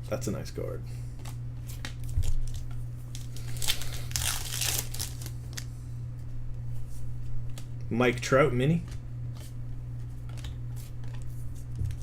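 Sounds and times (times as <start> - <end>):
foil wrapper crinkling and tearing: 2.0 - 5.7.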